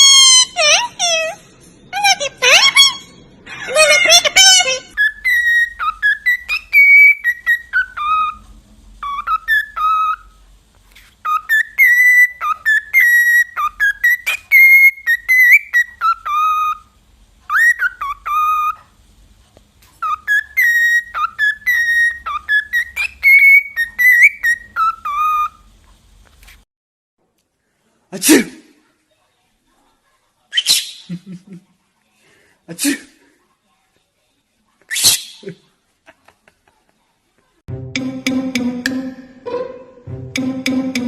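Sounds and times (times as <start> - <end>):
parrot whistling a tune: 0.0 - 1.3, 3.8 - 8.4, 9.0 - 10.3, 11.2 - 16.9, 17.5 - 18.8, 20.0 - 25.7.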